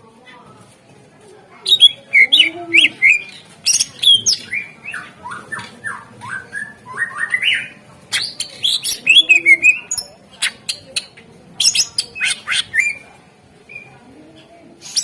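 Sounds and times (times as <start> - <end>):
bird singing chirps and whistles: 1.7 - 10.1.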